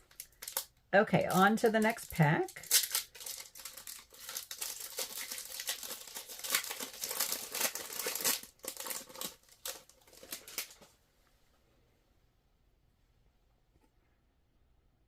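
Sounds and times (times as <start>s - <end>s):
wrapper crinkling and tearing: 0.0s - 10.9s.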